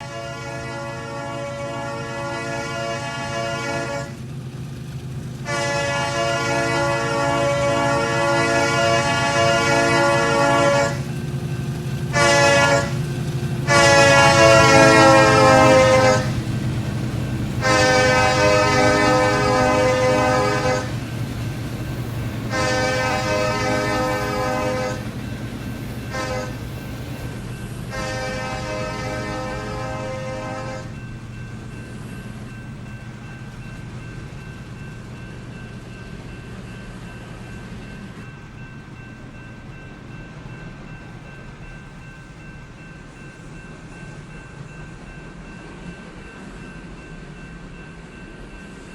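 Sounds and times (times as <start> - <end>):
locomotive air horn blasts: 0.0 - 4.2, 5.4 - 11.1, 12.1 - 13.0, 13.6 - 16.4, 17.6 - 21.0, 22.5 - 25.1, 26.1 - 26.6, 27.9 - 31.0
low train rumble: 0.0 - 48.9.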